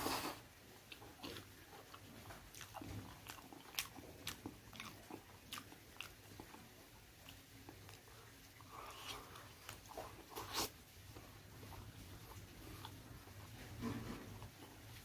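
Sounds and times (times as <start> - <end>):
person chewing and biting: 0.1 - 8.0.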